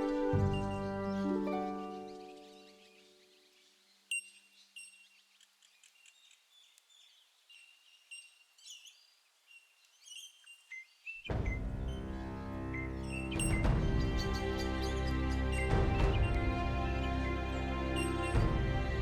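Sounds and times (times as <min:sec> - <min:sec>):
plucked harp-like music: 0:00.0 - 0:02.7, 0:11.8 - 0:19.0
birds chirping: 0:00.0 - 0:19.0.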